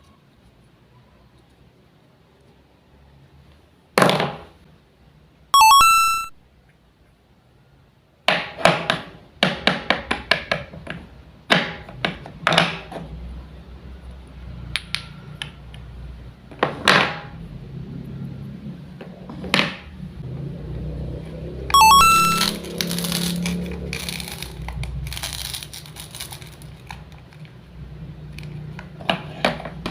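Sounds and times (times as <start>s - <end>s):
short chime: 5.6s - 6.3s, 21.8s - 22.6s.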